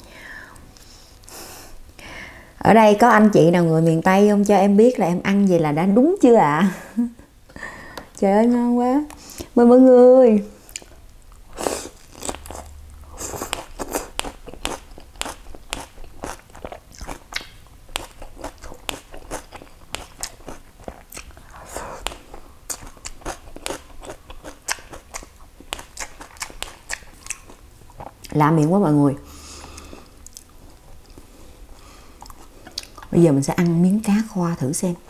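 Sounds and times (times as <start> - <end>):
crunchy chewing of vegetables: 10.6 - 28.4, 29.3 - 33.8.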